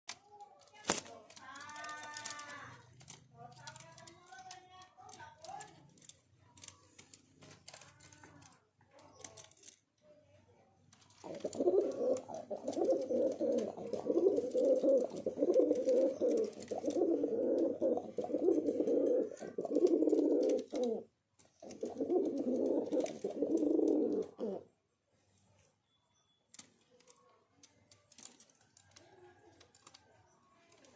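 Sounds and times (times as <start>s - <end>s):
pigeon cooing: 11.2s - 24.7s.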